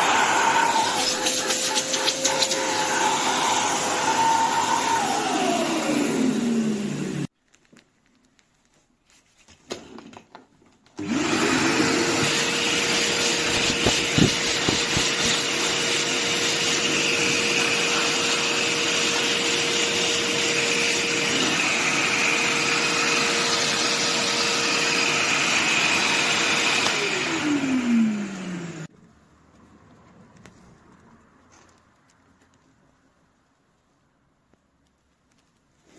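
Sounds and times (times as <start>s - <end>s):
suction air rushing: 0.0s - 5.8s, 11.3s - 18.5s
vacuum cleaner motor whine: 0.0s - 7.3s, 11.0s - 28.9s.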